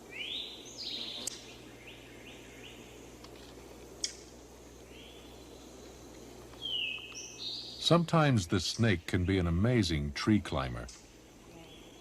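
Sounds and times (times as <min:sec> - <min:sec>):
low background hum: 0:00.0 - 0:12.0
bird chirps: 0:06.6 - 0:07.9.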